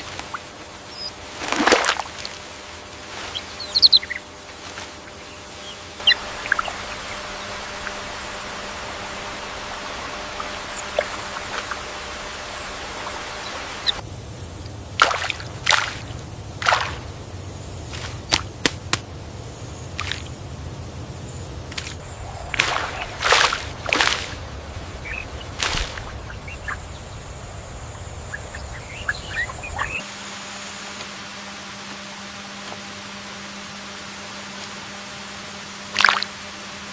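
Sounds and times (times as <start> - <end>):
water splashing: 1.2 - 2.6, 6.0 - 14.0, 14.8 - 19.1, 19.9 - 20.8, 21.6 - 30.0
faint bird chirps: 3.2 - 4.3, 5.1 - 8.2, 25.0 - 30.0.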